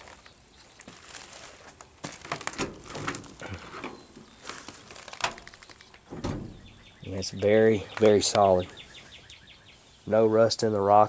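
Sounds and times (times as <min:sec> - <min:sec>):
crunching footsteps on dry brush: 0:00.0 - 0:06.1.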